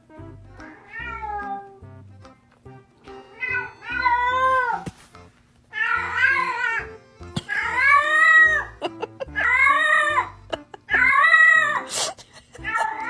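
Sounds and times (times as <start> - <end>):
cat meowing: 0.7 - 1.8, 3.2 - 4.9, 5.7 - 6.9, 9.4 - 10.3, 10.9 - 11.9.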